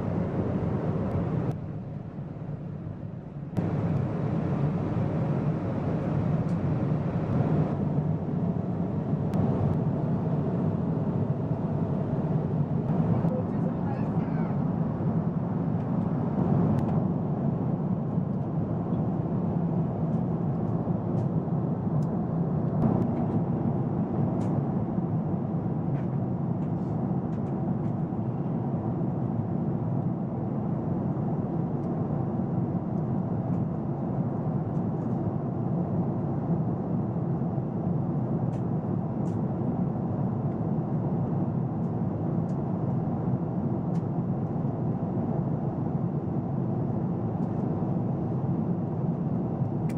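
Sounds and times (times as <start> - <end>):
airplane cabin engine rumble: 0.0 - 49.9.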